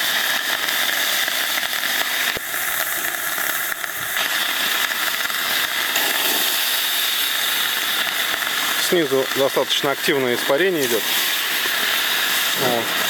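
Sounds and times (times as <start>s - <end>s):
water hissing into steam: 0.0s - 13.0s.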